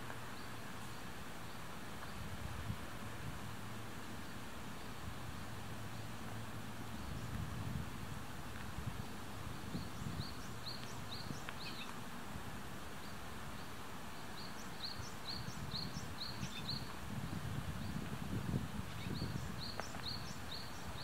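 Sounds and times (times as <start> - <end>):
outdoor hiss and rumble: 0.0 - 21.0
small bird chirping: 9.7 - 11.9, 14.4 - 16.9, 18.9 - 21.0.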